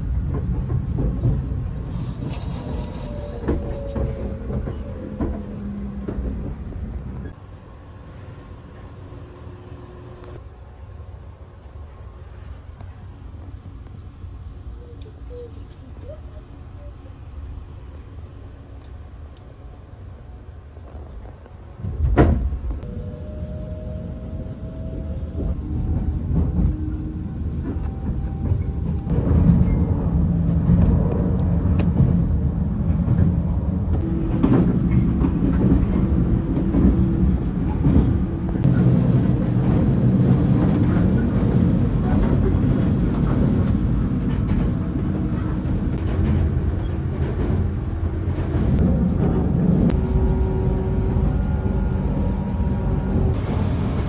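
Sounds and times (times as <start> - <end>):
train rumbling on rails: 0.0 - 54.0.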